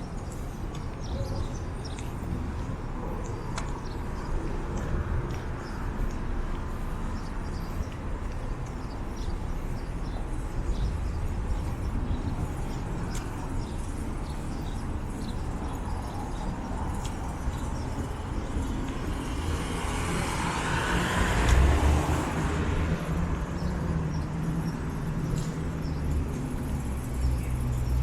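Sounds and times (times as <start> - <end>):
street traffic rumble: 0.0 - 28.0
vehicle passing close by: 19.2 - 22.9.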